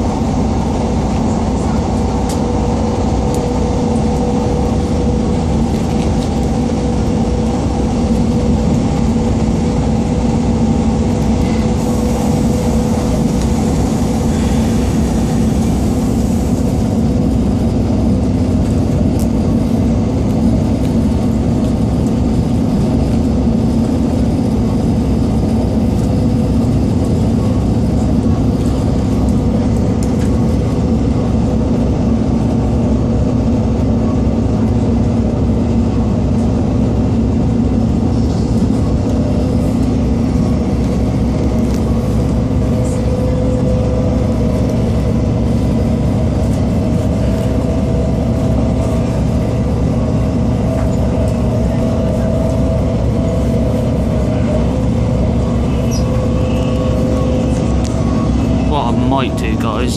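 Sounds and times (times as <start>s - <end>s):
diesel engine and wheels rumbling: 0.0s - 59.9s
low hum: 0.0s - 59.9s.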